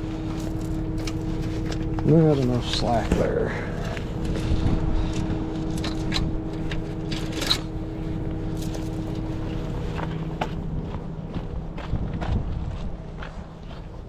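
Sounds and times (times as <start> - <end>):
truck engine humming: 0.0 - 14.0
metallic clinks and knocks: 0.2 - 2.0, 5.6 - 7.9, 8.5 - 9.7.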